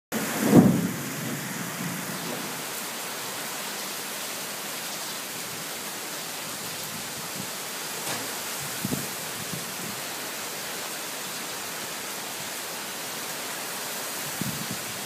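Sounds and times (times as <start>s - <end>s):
heavy rain on roofs and street: 0.1s - 15.0s
loud low thump: 0.4s - 1.0s.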